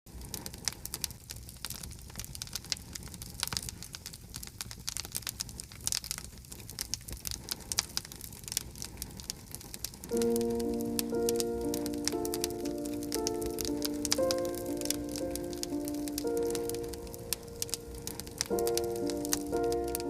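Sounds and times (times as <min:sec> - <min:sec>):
campfire crackling and popping: 0:00.1 - 0:20.0
low rumble of fire: 0:00.1 - 0:20.0
music: 0:10.1 - 0:20.0.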